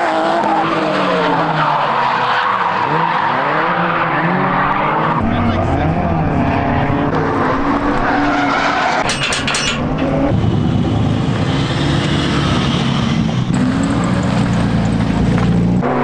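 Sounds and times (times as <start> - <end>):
tires squealing: 0.0 - 16.0
car engine running hard: 9.8 - 16.0.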